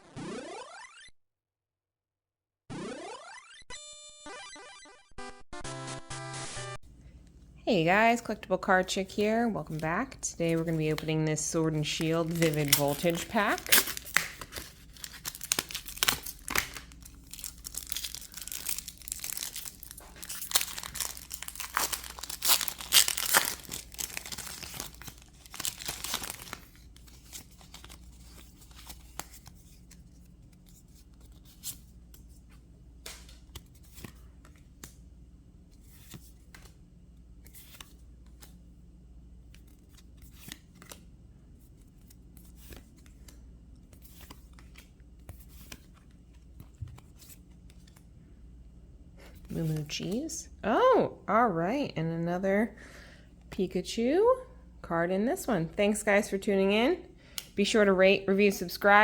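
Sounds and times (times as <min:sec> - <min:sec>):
foil wrapper tearing and crinkling: 0:12.0 - 0:29.4
cards clicking and sliding: 0:33.0 - 0:35.0, 0:35.7 - 0:36.8, 0:39.5 - 0:41.0, 0:41.8 - 0:48.0.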